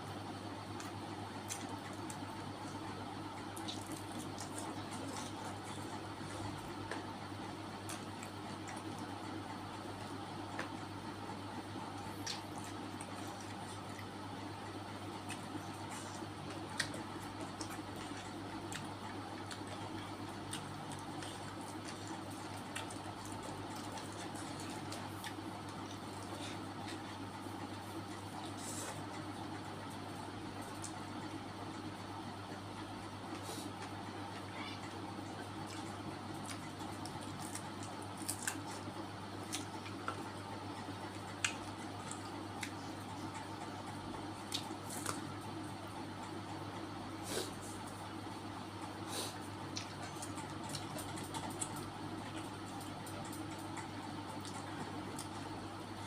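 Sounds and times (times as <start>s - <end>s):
steady low hum: 0.0s - 56.0s
crunches while chewing: 0.1s - 56.0s
mouth clicks while chewing: 15.2s - 27.1s, 35.4s - 40.4s, 41.1s - 45.4s, 49.4s - 55.4s.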